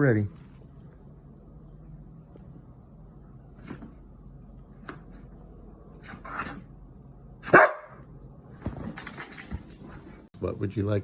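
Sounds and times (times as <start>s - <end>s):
dog barking loudly: 7.5s - 8.0s.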